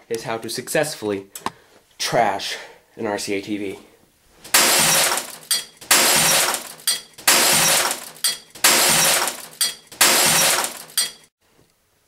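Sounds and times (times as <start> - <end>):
glass smashing: 4.5 - 11.3.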